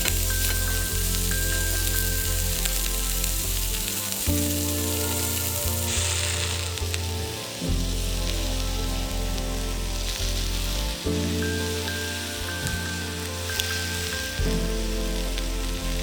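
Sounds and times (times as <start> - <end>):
background music with low chords: 0.0 - 16.0
food sizzling in a pan: 0.0 - 16.0.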